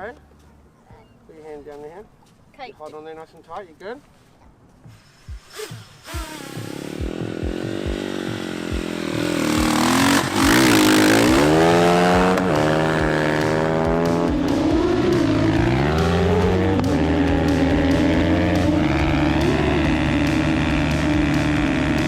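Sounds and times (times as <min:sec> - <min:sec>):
motorbike engine revving: 0:04.9 - 0:22.0.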